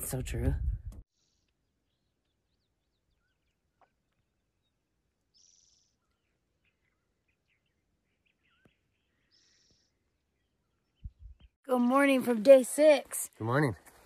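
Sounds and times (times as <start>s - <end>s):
faint birds chirping: 0.7s - 12.0s
bird trills: 4.6s - 11.5s.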